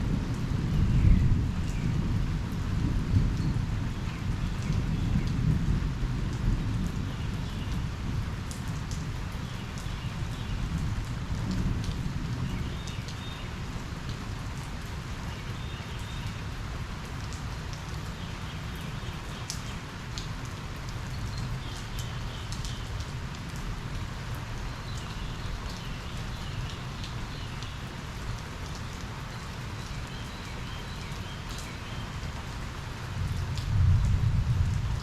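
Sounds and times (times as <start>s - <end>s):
rain pattering: 0.0s - 35.0s
thunder rumbling: 33.2s - 35.0s.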